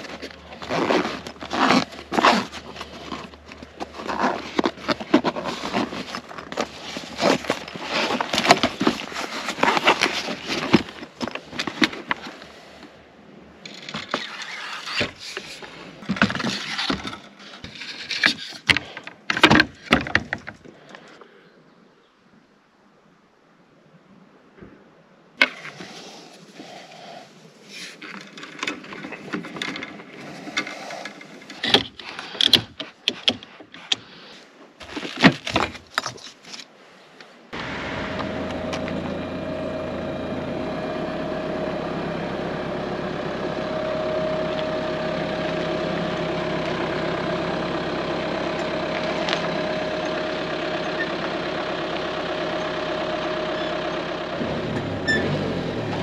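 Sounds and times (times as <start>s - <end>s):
boat motor running: 37.6s - 56.0s
gear knocking and clattering: 42.0s - 56.0s.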